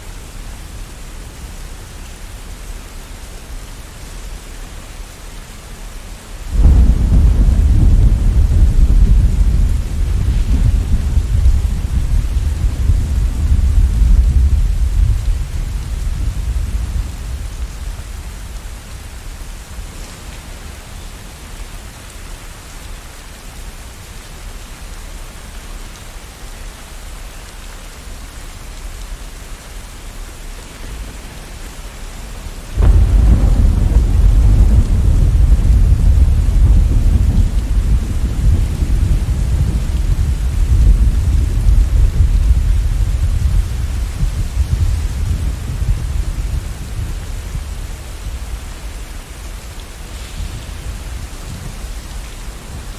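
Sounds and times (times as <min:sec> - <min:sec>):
steady rain hiss: 0:00.0 - 0:52.9
loud thunderclap: 0:06.5 - 0:18.6, 0:30.9 - 0:47.7
thunder rumble: 0:06.5 - 0:20.9, 0:30.6 - 0:52.9.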